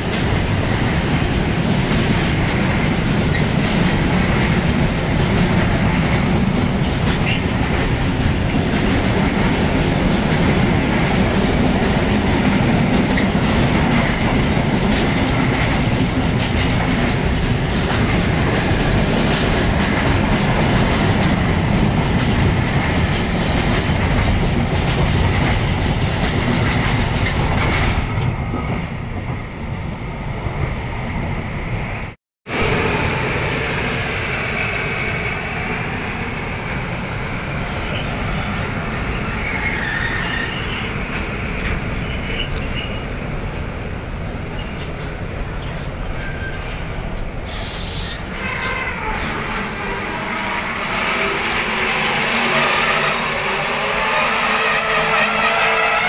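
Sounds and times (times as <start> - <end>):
clatter over rail joints: 0.0 - 29.4
freight train wheels rumbling: 0.0 - 56.0.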